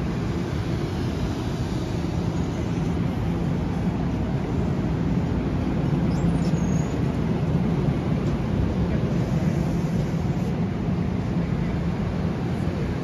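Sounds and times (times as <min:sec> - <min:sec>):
electric train rumbling past: 0:00.0 - 0:06.1.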